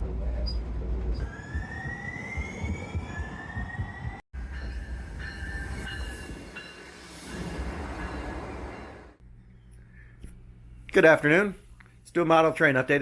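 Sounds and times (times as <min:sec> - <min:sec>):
train rumbling on track: 0:00.0 - 0:09.2.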